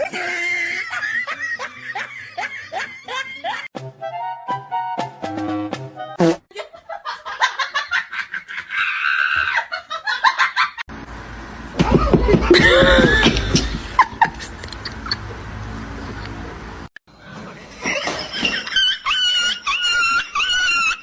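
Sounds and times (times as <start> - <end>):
people laughing: 0.0 - 3.7, 6.5 - 10.8, 12.0 - 15.4, 17.5 - 21.0.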